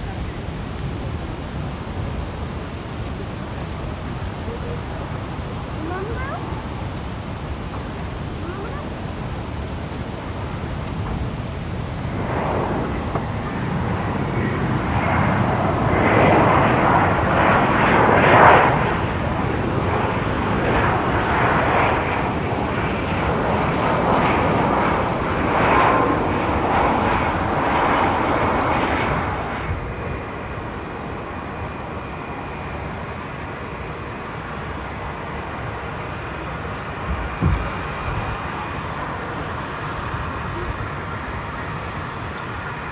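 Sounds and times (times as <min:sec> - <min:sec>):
jet engines rushing past: 0:00.0 - 0:42.9
brief thump: 0:37.4 - 0:37.6.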